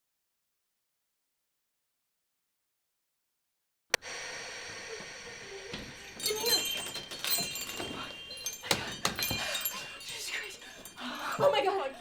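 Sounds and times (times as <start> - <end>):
chime-like ringing: 5.9 - 12.0.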